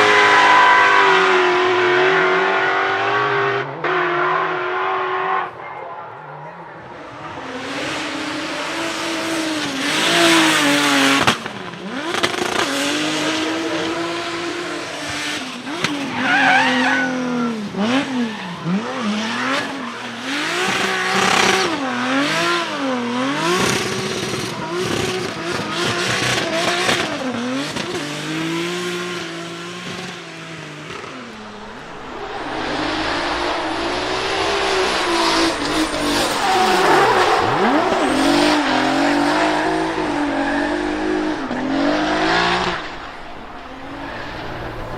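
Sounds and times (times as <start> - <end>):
car engine revving hard: 7.2 - 44.9
tyre squeal: 31.4 - 44.9.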